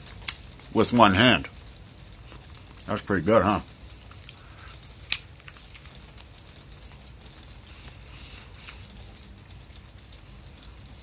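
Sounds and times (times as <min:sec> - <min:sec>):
person chewing with clicks: 0:00.2 - 0:00.5, 0:04.0 - 0:11.0.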